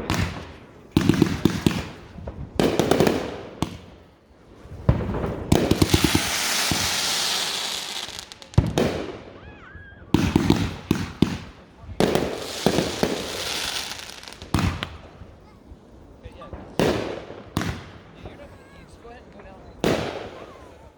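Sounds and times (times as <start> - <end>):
fireworks bangs with crackles: 0.0 - 20.9
firework hiss: 4.7 - 9.1, 12.0 - 14.9.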